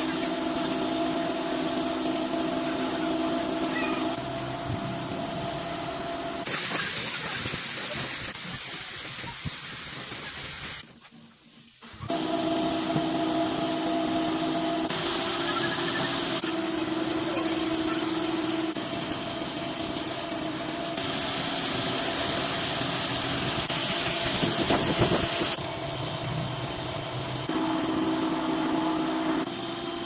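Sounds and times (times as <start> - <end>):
steady machine hum: 0.0 - 8.4, 12.1 - 30.0
compressed air hissing from air gun: 5.6 - 10.8, 14.8 - 25.6.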